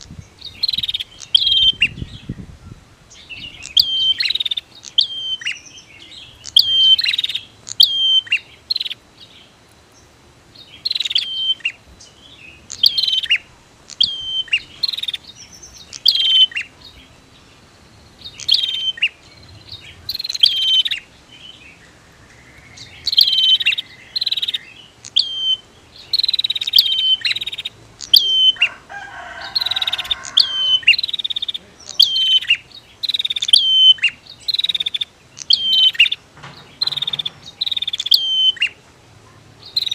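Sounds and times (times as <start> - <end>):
bird calling sharp high notes: 3.2 - 9.0, 10.8 - 11.8, 12.5 - 17.3, 18.2 - 21.1, 21.8 - 38.8.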